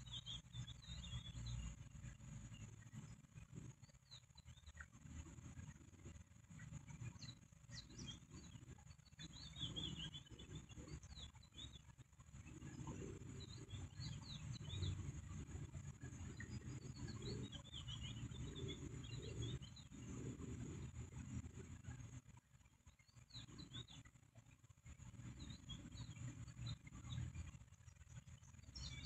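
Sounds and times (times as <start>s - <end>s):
high thin bird chirps: 0.0s - 1.9s
faint low rumble: 0.0s - 29.0s.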